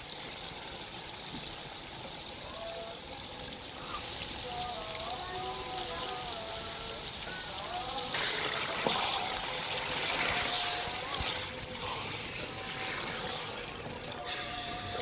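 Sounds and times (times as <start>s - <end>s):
food sizzling in hot oil: 4.1s - 15.0s.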